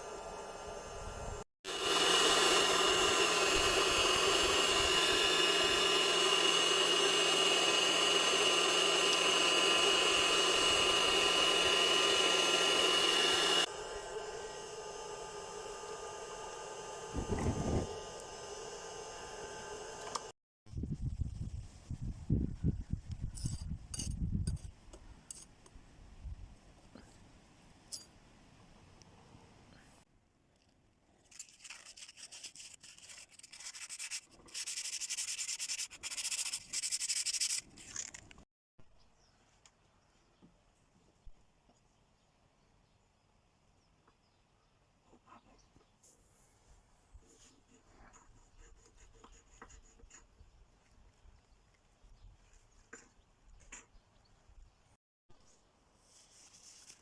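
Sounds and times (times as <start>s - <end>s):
power tool whining: 0.0s - 20.4s.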